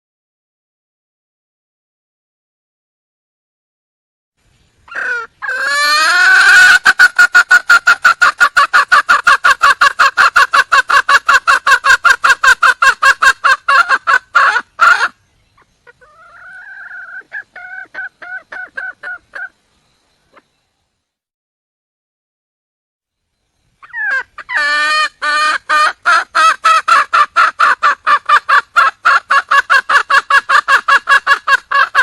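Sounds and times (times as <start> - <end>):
junglefowl hen clucking: 4.9 - 19.6, 20.3 - 20.6, 23.8 - 32.0.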